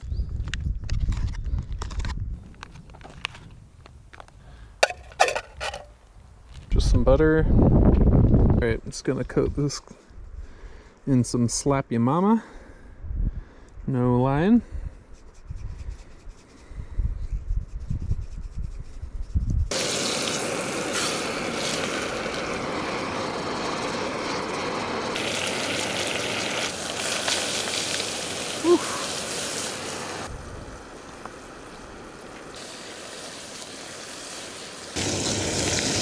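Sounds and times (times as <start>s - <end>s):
fish sizzling in a pan: 4.8s - 5.9s, 19.7s - 36.0s.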